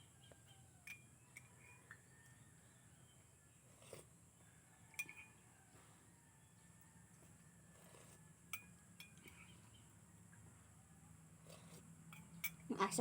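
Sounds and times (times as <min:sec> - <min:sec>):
spoon clinking against dish: 0:00.8 - 0:01.5, 0:04.9 - 0:05.4, 0:12.1 - 0:12.6.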